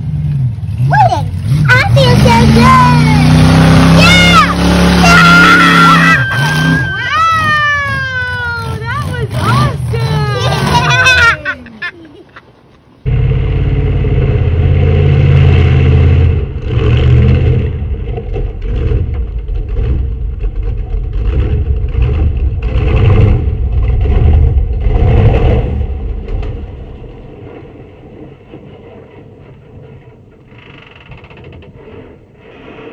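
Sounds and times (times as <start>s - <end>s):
truck engine revving: 0.0s - 11.4s, 13.0s - 29.0s.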